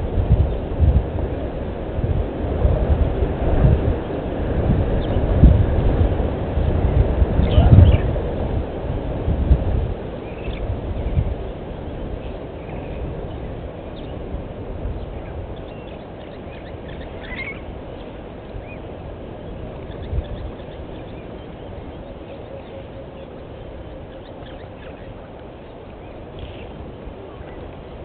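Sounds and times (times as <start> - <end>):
steady low rumbling: 0.0 - 28.0.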